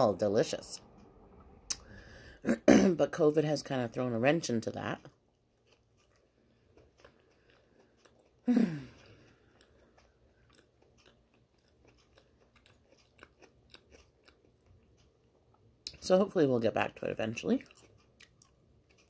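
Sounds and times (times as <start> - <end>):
chewing bagel: 4.6 - 16.1, 16.9 - 19.0
person humming mmm: 8.4 - 9.2.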